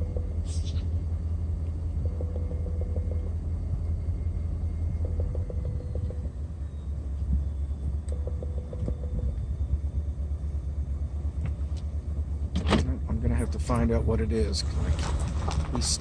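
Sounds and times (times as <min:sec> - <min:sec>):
rapidly pulsing tone: 0:00.0 - 0:10.9
diesel engine rumble: 0:00.0 - 0:16.0.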